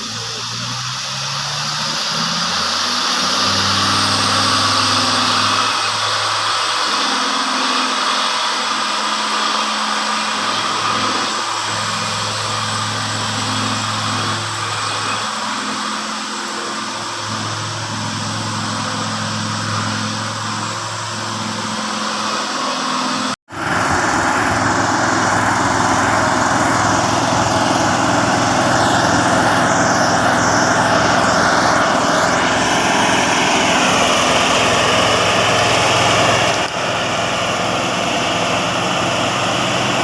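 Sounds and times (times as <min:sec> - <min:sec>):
truck engine running: 0:00.0 - 0:40.0.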